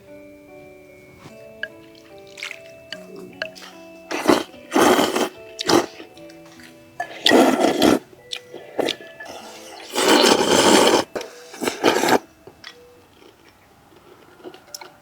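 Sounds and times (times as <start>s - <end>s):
soft background music: 0.0s - 15.0s
noodles being slurped: 1.3s - 12.3s.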